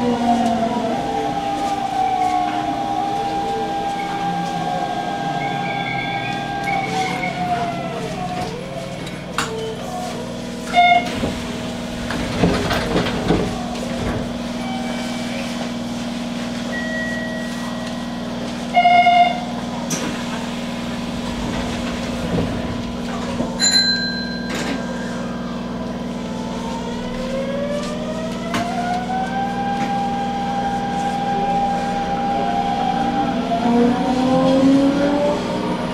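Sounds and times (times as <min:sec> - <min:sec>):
traction motor whine rising: 0:00.0 - 0:10.5, 0:24.6 - 0:35.9
train equipment hum: 0:00.0 - 0:35.9.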